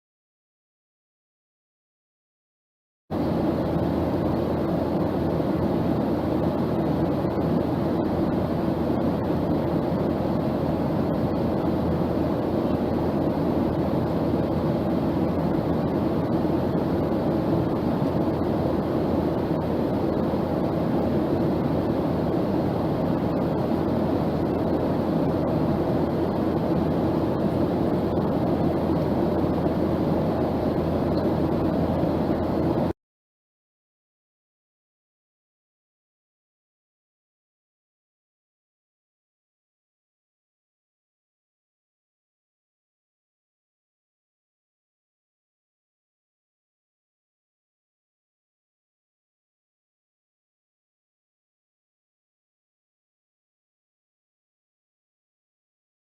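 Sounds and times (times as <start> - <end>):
airplane roar: 3.1 - 32.9.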